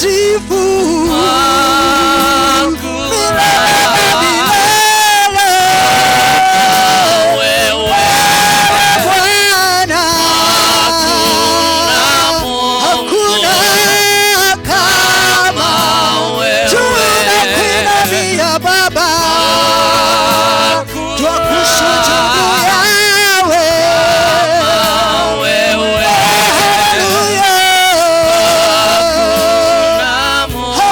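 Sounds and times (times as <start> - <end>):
person singing long notes: 0.0 - 30.9
steady bass line: 0.0 - 30.9.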